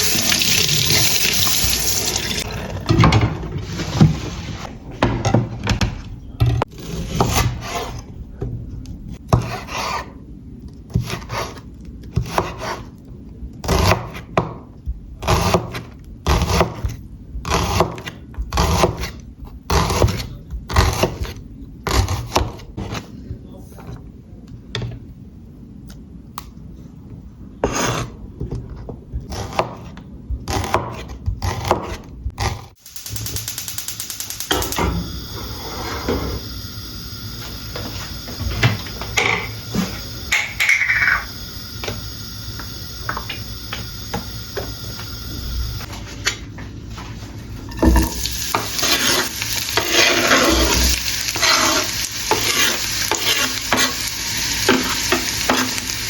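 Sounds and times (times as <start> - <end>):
food sizzling in a pan: 32.8 - 45.9, 47.7 - 56.0
stirring and scraping: 46.9 - 56.0.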